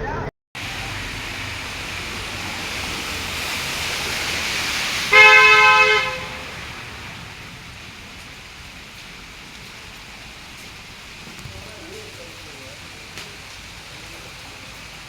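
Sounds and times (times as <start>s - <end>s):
vehicle horn honk: 5.1s - 6.8s.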